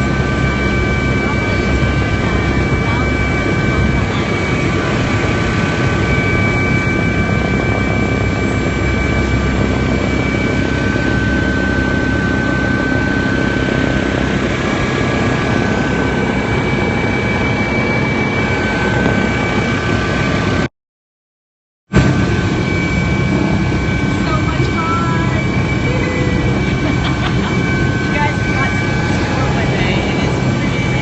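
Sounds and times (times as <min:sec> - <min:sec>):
helicopter cabin drone: 0:00.0 - 0:20.7, 0:21.9 - 0:31.0
high whining tones: 0:22.0 - 0:31.0.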